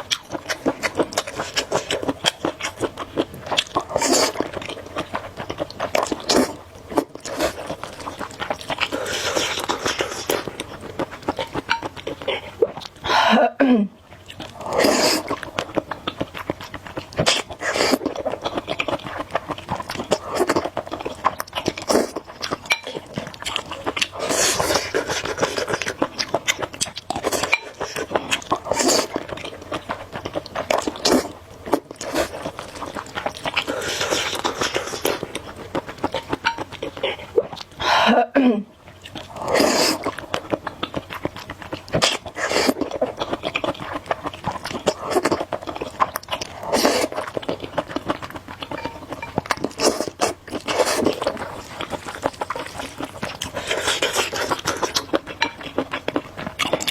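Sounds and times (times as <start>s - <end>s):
wet chewing: 0.0s - 13.2s, 14.0s - 37.9s, 38.7s - 56.9s
noodle slurping: 14.6s - 15.4s, 24.1s - 26.0s, 39.3s - 40.2s, 44.8s - 47.4s, 49.7s - 55.5s.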